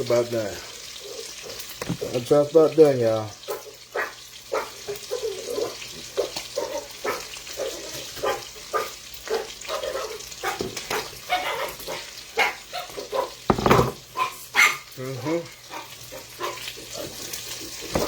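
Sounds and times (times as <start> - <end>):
hot oil crackling and popping: 0.0 - 18.0
meat frying in oil: 0.0 - 18.0.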